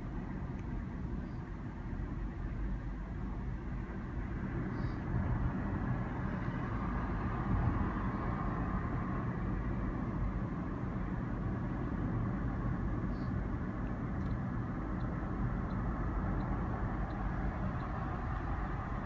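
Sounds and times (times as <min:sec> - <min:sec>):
car road and engine noise: 0:00.0 - 0:19.0
faint regular ticks: 0:14.2 - 0:19.0.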